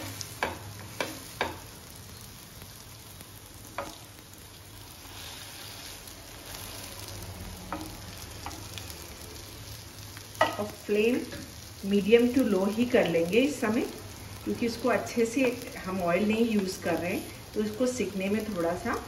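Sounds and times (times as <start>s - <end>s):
kebabs sizzling on a pan: 0.0s - 19.0s
wooden spatula knocking on pan: 10.4s - 10.6s.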